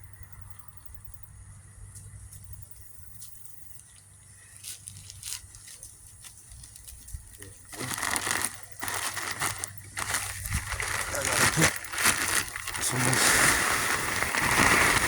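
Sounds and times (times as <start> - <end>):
garden material crinkling onto compost: 4.5 - 15.0.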